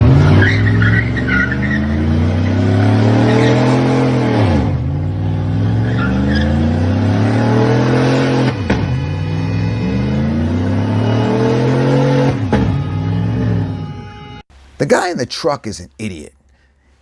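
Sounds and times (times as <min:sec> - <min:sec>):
tires squealing: 0:00.0 - 0:13.6
truck engine revving: 0:00.0 - 0:14.0.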